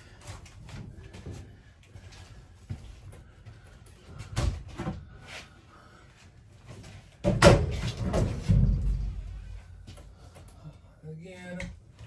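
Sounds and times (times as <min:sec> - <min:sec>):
bangs and rattling: 0:07.2 - 0:09.9.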